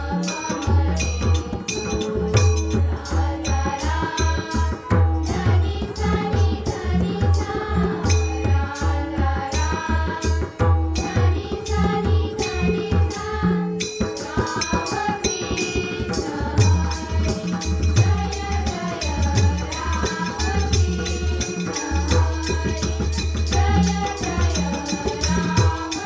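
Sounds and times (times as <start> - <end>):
rattling hand percussion: 0.0 - 26.0
women singing devotional song: 0.0 - 26.0
drum beat: 16.4 - 26.0.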